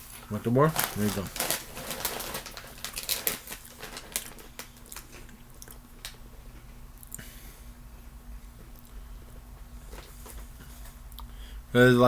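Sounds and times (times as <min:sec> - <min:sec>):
crunchy snack being chewed: 0:02.0 - 0:06.2.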